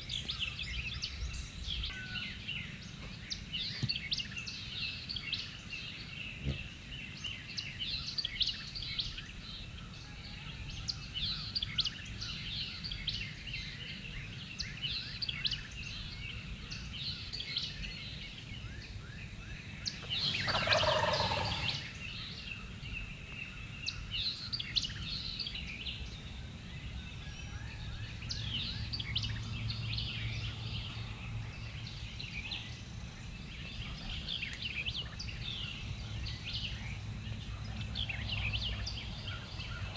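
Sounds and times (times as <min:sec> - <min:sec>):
small birds chirping: 0:14.8 - 0:39.9
wild turkey gobbling: 0:20.0 - 0:21.9.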